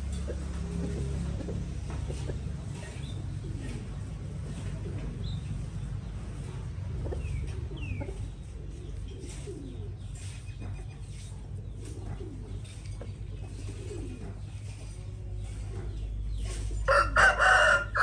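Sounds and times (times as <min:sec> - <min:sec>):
birds cooing: 0:00.0 - 0:18.0.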